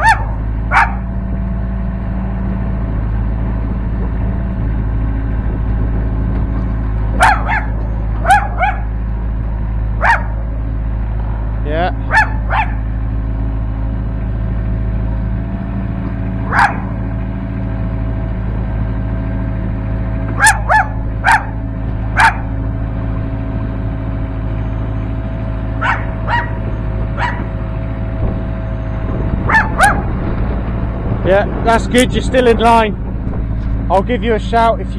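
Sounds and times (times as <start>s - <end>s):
dog barking: 0.0s - 1.1s, 7.2s - 8.9s, 10.0s - 10.4s, 12.1s - 12.9s, 16.4s - 17.0s, 20.4s - 21.6s, 22.2s - 22.5s, 25.8s - 26.6s, 27.2s - 27.5s, 29.5s - 30.1s
excavator diesel engine drone: 0.0s - 34.9s.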